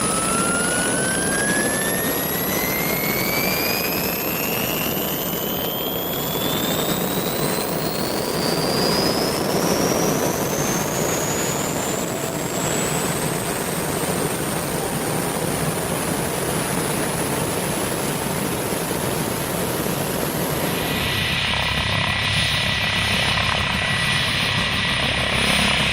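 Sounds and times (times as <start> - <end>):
helicopter turbine engine whine: 0.0 - 25.9.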